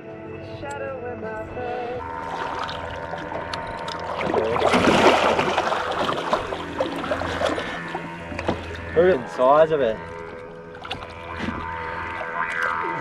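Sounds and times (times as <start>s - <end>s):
background music: 0.0s - 13.0s
water splashing around boat: 2.0s - 13.0s.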